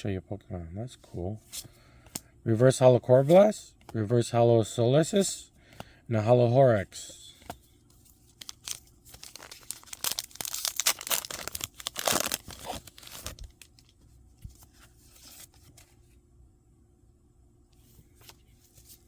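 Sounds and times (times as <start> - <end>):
foil wrapper tearing and crinkling: 8.4 - 13.9.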